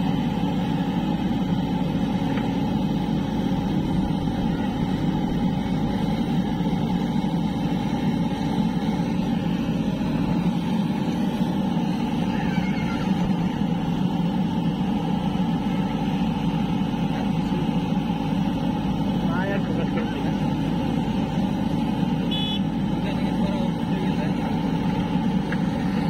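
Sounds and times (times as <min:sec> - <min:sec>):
heavy diesel engine droning: 0:00.0 - 0:26.0.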